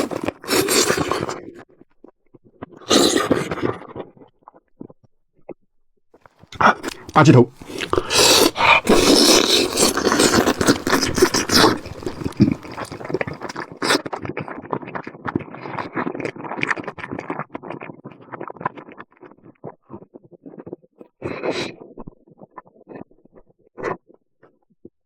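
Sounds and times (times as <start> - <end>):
wet chewing and lip smacking: 0.0 - 1.6, 6.6 - 20.8.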